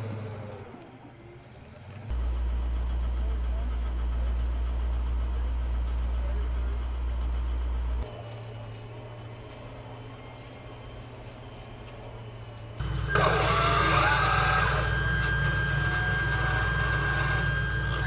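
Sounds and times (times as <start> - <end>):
diesel engine rumble: 0.0 - 18.0
high electronic whine: 12.8 - 18.0
low steady hum: 12.8 - 18.0.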